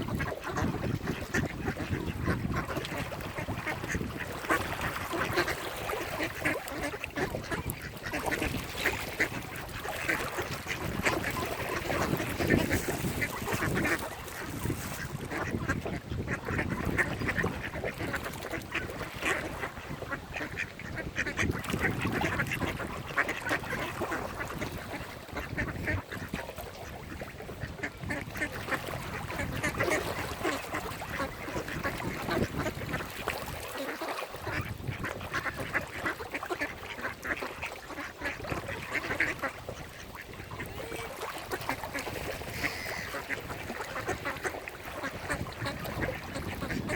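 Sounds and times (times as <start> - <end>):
ducks quacking: 0.0 - 46.9.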